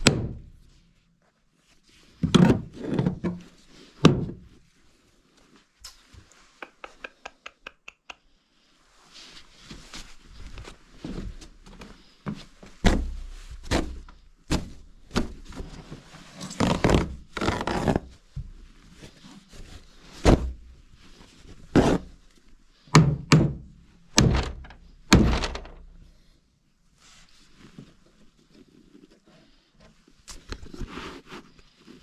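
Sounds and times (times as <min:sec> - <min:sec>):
heavy thunks and knocks: 0:00.0 - 0:00.5, 0:23.0 - 0:25.8.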